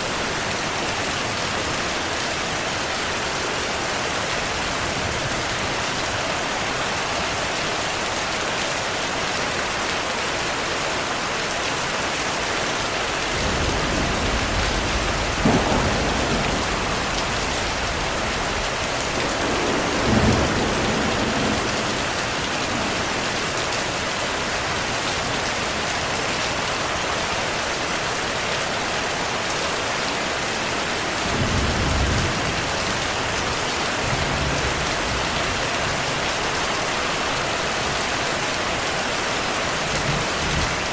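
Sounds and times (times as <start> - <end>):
heavy rain falling: 0.0 - 40.9
thunder rumbling and clapping: 13.1 - 23.8.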